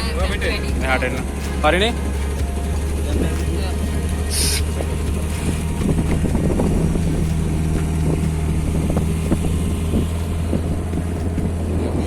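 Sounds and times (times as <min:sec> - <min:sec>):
motorboat engine humming: 0:00.0 - 0:12.0.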